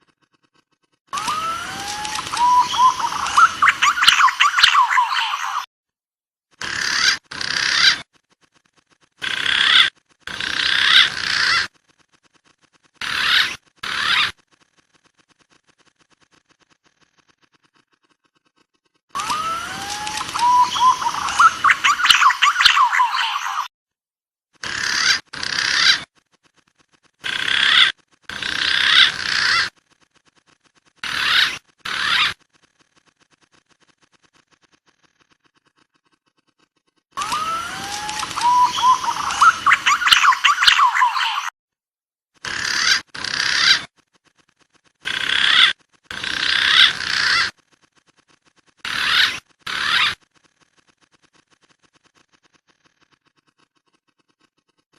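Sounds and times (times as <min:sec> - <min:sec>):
pigeon calls: 0:00.2 - 0:05.7, 0:06.6 - 0:08.2, 0:09.2 - 0:11.7, 0:12.3 - 0:14.4, 0:16.2 - 0:23.7, 0:24.6 - 0:26.6, 0:27.2 - 0:29.8, 0:31.0 - 0:32.5, 0:37.1 - 0:41.5, 0:42.4 - 0:44.4, 0:45.0 - 0:47.6, 0:48.4 - 0:50.3
whistled pigeon calls: 0:01.2 - 0:05.7, 0:19.2 - 0:23.7, 0:37.2 - 0:41.5.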